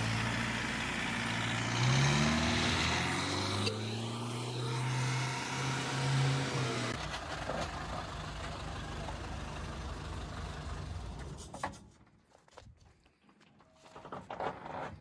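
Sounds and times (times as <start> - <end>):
truck engine running: 0.0 - 11.5.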